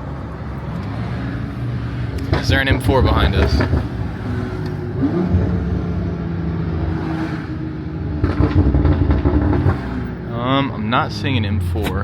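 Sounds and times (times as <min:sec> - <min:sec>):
car engine running while driving: 0:00.0 - 0:11.0
road noise: 0:00.0 - 0:12.0.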